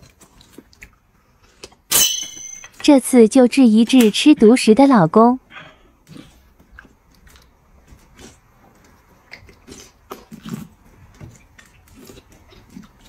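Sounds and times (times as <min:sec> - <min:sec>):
person slurping and smacking: 0:06.1 - 0:13.0.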